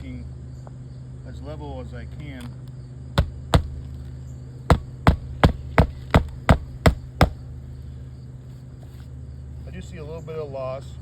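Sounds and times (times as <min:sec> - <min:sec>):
hammer striking nail: 0:03.2 - 0:03.9, 0:04.7 - 0:07.4.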